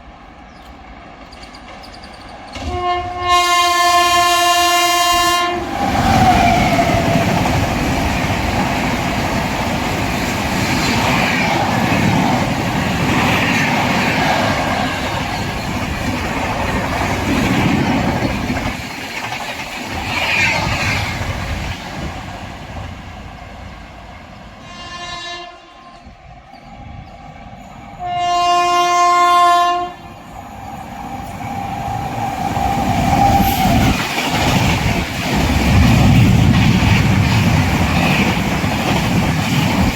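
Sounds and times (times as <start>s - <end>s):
rumble of another train: 0.0s - 39.9s
train rushing past: 0.0s - 39.9s
train horn: 2.6s - 7.0s, 24.6s - 26.2s, 28.0s - 30.2s.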